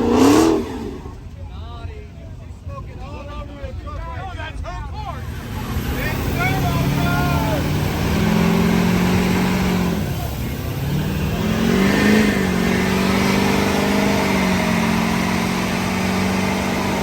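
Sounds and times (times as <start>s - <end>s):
car engine revving: 0.0s - 1.4s, 5.0s - 17.0s.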